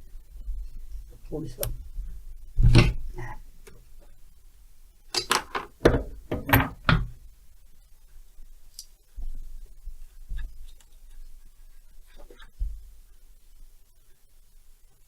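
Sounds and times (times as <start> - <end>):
tools knocking and clattering: 5.2 - 7.2.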